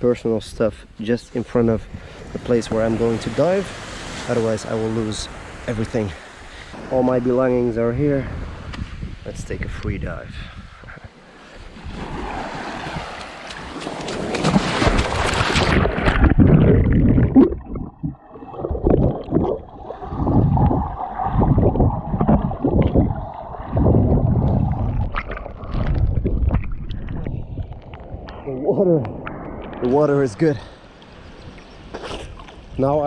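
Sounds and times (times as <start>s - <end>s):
sea water splashing: 2.0s - 7.5s, 11.1s - 28.5s
underwater swimming whooshes: 11.3s - 31.6s
muffled bubbling: 15.7s - 29.9s.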